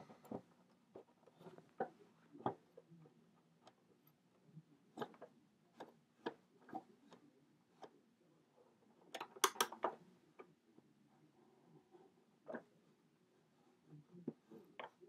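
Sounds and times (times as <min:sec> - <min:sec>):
plastic clicks and knocks: 0:09.1 - 0:10.0.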